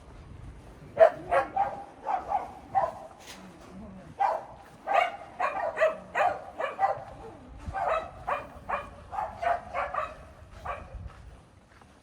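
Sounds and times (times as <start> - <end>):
dog barking: 1.0 - 3.1, 4.2 - 10.9.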